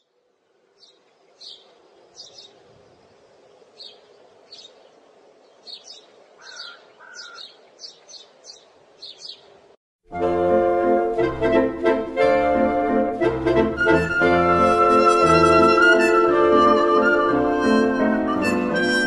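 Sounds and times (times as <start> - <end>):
small birds chirping: 0.0 - 9.8
lower whistled notes: 13.8 - 19.0.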